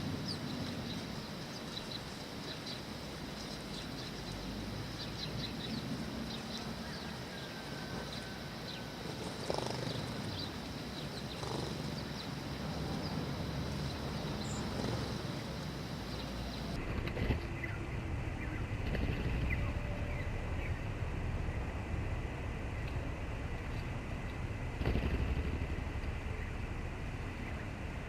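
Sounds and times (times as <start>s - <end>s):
sparrows chirping: 0.0s - 16.8s, 17.4s - 20.9s
low outdoor rumble: 0.0s - 28.0s.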